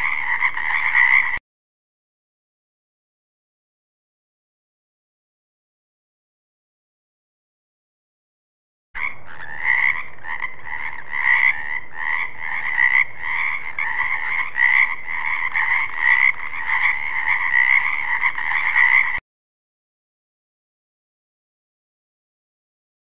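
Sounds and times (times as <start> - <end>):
frog croaking: 0.0 - 1.4, 9.0 - 19.2.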